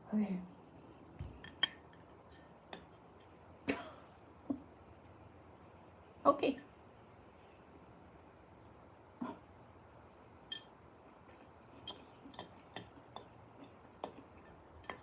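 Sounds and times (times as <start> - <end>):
faint chewing of food: 0.5 - 3.5, 7.3 - 15.0.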